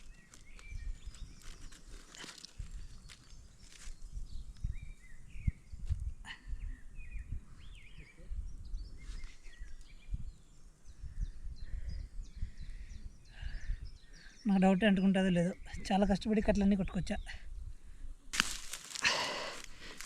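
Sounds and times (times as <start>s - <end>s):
wind buffeting microphone: 0.0s - 1.8s, 2.5s - 14.4s
small birds chirping: 0.0s - 17.6s.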